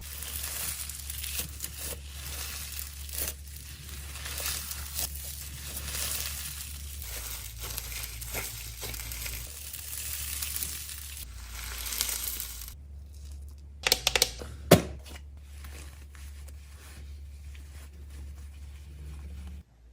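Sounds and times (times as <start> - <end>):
fidget toys crinkling: 0.0 - 14.3.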